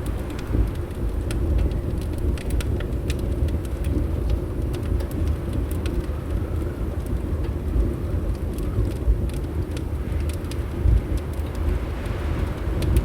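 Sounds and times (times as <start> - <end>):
wood fire crackling: 0.0 - 12.8
low rumble of wind: 0.0 - 13.0.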